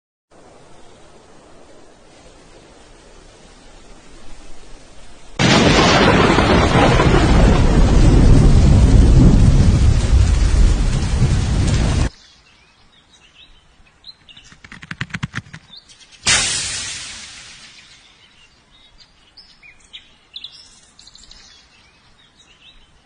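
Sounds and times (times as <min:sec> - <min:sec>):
heavy rain: 0:00.3 - 0:12.1
rumbling thunder: 0:05.4 - 0:12.1
birds chirping: 0:12.1 - 0:16.3, 0:17.2 - 0:23.0
rapid clicks: 0:14.4 - 0:16.0
loud burst of noise: 0:16.2 - 0:18.1.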